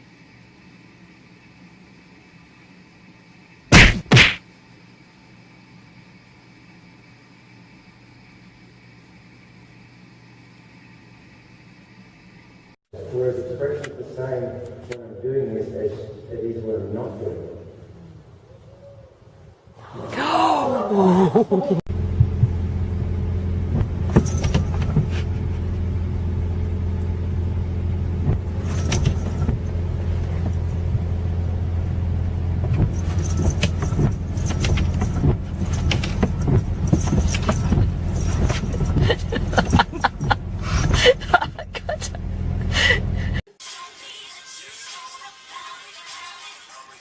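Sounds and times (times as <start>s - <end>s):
low mechanical hum: 0.0s - 43.4s.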